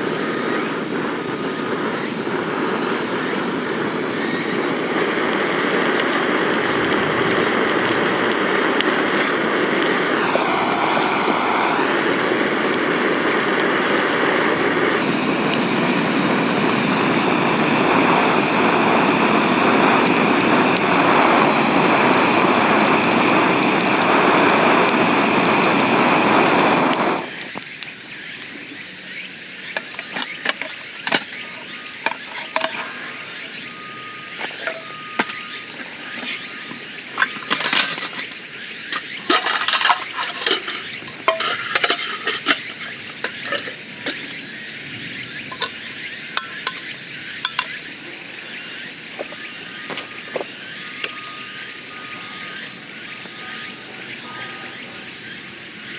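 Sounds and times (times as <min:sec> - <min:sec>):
steady high hiss: 0:00.0 - 0:55.9
loud rushing noise: 0:00.8 - 0:27.3
cookware and utensils clinking: 0:29.8 - 0:32.9, 0:37.2 - 0:44.4, 0:46.4 - 0:47.8.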